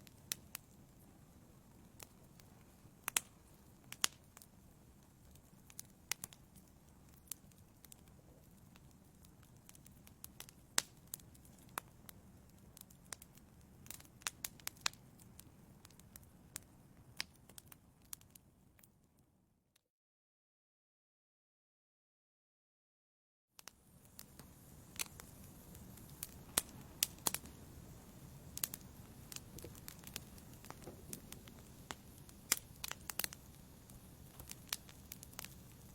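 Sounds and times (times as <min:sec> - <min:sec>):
logs crackling and popping: 0:00.0 - 0:18.9, 0:23.6 - 0:35.9
fire rumbling: 0:23.7 - 0:35.9.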